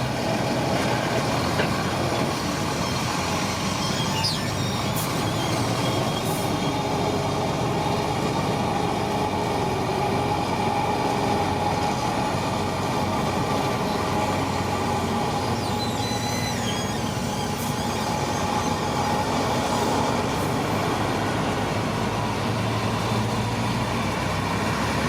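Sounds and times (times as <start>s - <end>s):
bulldozer diesel engine running: 0.0s - 25.0s
brief high squeal: 2.7s - 7.0s, 15.3s - 20.0s.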